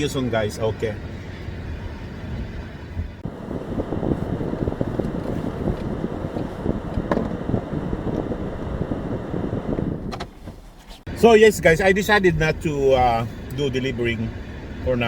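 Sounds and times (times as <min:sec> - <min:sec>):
wind buffeting microphone: 0:01.0 - 0:10.4.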